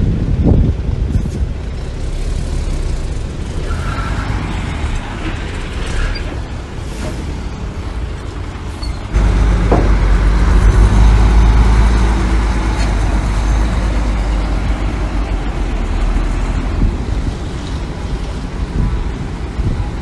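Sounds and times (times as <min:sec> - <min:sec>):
heavy diesel engine rumbling: 0:00.0 - 0:20.0.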